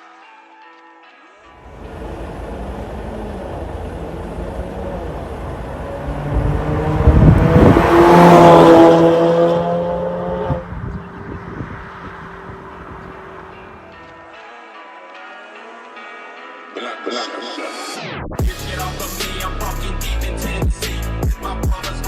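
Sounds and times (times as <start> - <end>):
car exhaust note: 1.6 - 13.9.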